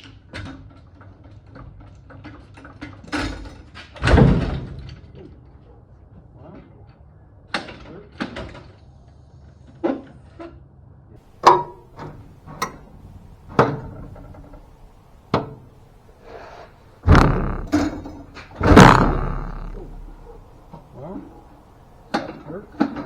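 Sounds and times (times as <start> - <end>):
heavy bangs with low rumble: 11.4 - 23.0.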